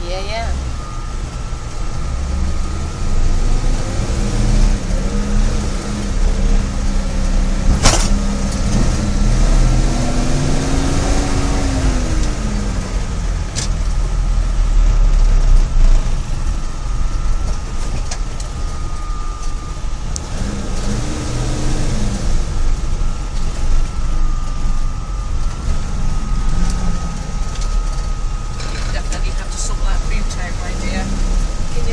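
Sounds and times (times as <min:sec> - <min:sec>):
loud engine fan: 0:00.0 - 0:31.9
truck engine running: 0:00.0 - 0:31.9
sharp click: 0:07.7 - 0:08.2.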